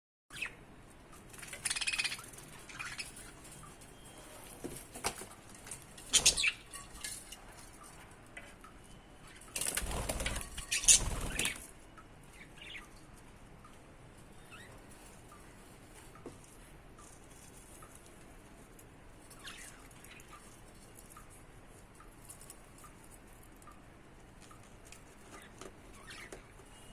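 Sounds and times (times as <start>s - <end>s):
budgie flapping wings: 9.6s - 11.7s.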